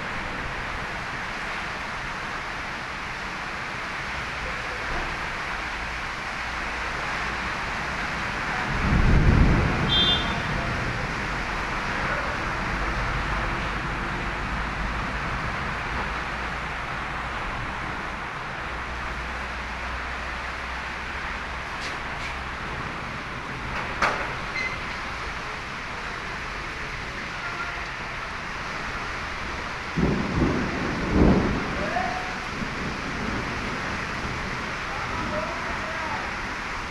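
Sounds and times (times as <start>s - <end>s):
heavy rain hissing: 0.0s - 36.9s
low rumble of thunder: 5.0s - 21.6s, 28.7s - 36.9s.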